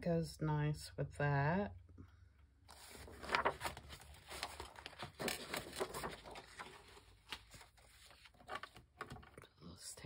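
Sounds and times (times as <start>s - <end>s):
paper rustling: 2.7s - 9.4s.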